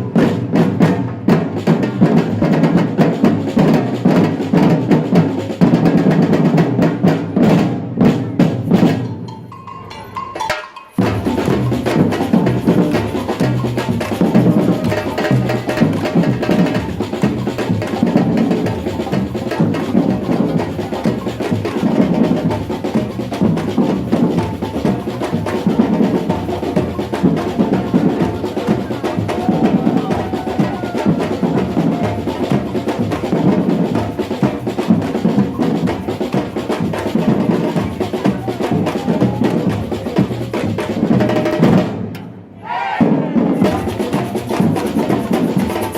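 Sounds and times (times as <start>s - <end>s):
samba drum group playing: 0.0s - 45.9s.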